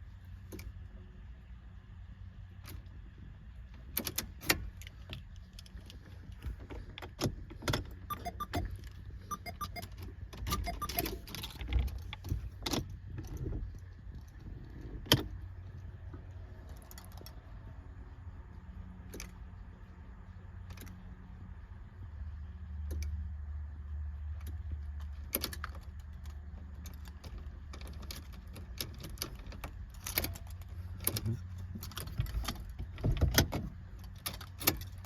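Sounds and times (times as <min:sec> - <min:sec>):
key clicking in ignition: 0:07.7 - 0:12.8.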